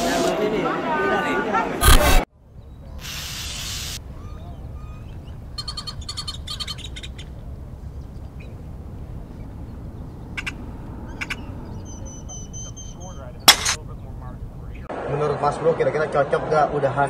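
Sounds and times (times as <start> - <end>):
birds chirping: 1.8 - 14.9
steady low rumble: 4.0 - 14.9.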